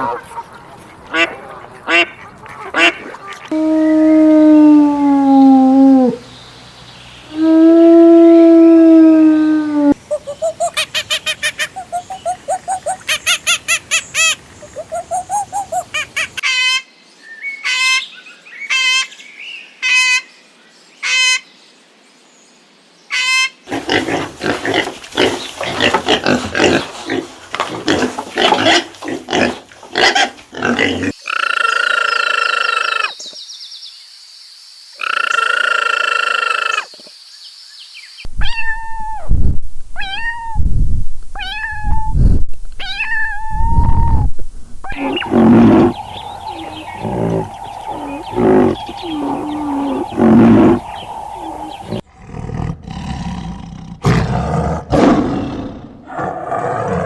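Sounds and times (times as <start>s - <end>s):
animal calls: 9.9s - 16.8s, 44.9s - 52.0s
high falling chirps: 10.1s - 16.1s, 44.9s - 52.0s
short pulsed calls: 14.7s - 15.9s, 44.9s - 52.0s
steady high call: 44.9s - 52.0s
dense harsh calls: 44.9s - 52.1s.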